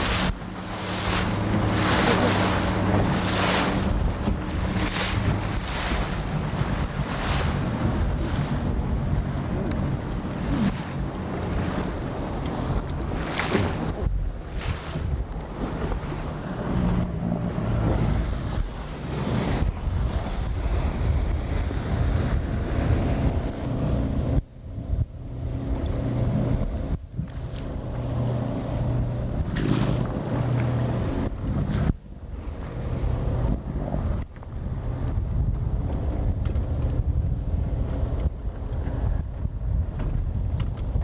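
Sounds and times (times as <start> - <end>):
water rushing past: 0.0 - 24.4
motorboat engine drone: 0.0 - 41.0
wind buffeting microphone: 0.0 - 41.0.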